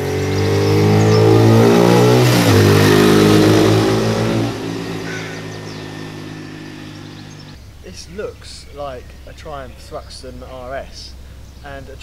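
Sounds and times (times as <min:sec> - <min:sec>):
motorcycle engine passing by: 0:00.0 - 0:07.8.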